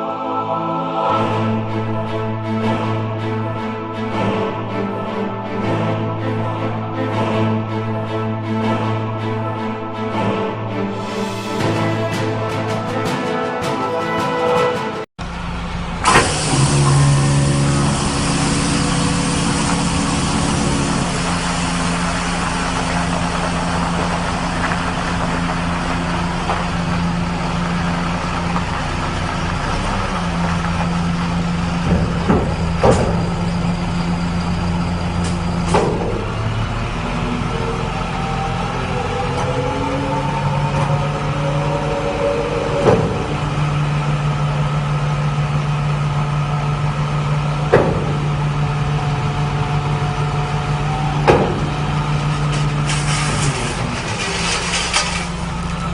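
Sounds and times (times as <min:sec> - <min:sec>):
rising whine: 0:15.2 - 0:55.9
truck engine running: 0:15.2 - 0:55.9.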